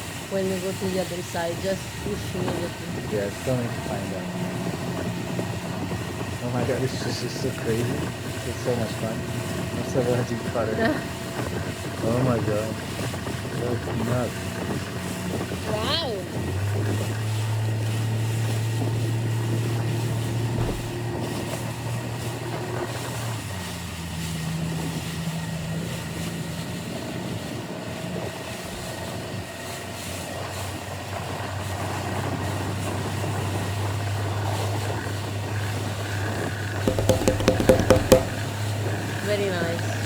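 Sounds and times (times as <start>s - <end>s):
outboard engine running: 0.0s - 40.0s
water noise: 14.5s - 22.3s, 36.8s - 38.6s.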